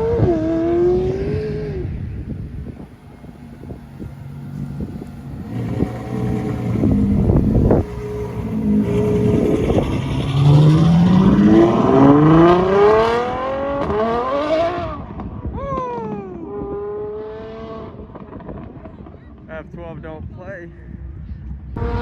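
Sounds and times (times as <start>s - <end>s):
car engine accelerating hard: 0.0s - 19.6s, 21.2s - 22.0s.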